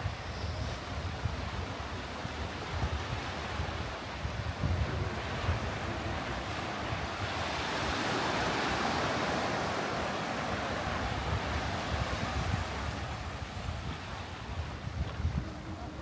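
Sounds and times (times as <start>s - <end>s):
wind buffeting microphone: 0.0s - 16.0s
ocean wave breaking on beach: 4.8s - 14.6s.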